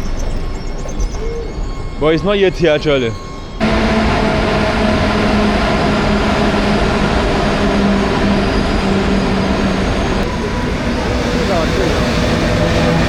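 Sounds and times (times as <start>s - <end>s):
steady low hum: 0.0s - 13.0s
train wheels rumbling on rails: 3.6s - 13.0s.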